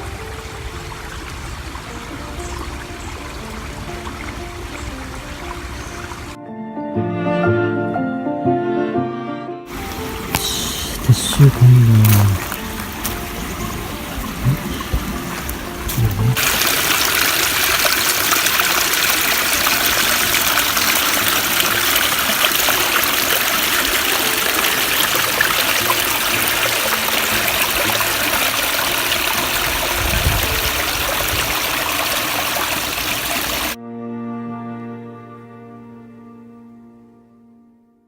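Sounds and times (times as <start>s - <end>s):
river water flowing: 0.0s - 6.4s, 9.7s - 33.8s
music: 0.0s - 33.2s, 33.8s - 38.0s.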